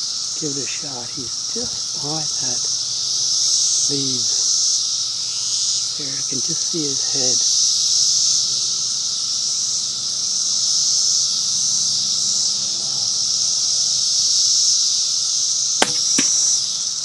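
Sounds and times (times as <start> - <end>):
high insect chorus: 0.0 - 17.0
suppressed gunshot crack: 15.8 - 16.8.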